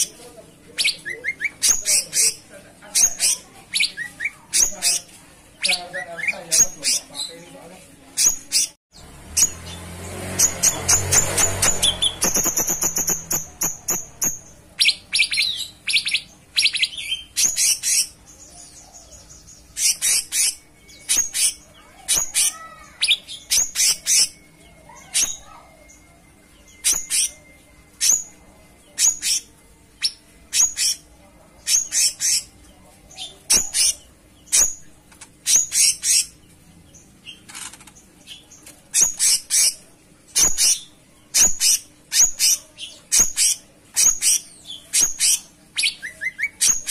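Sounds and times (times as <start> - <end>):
bird singing high chirps: 8.2 - 28.4.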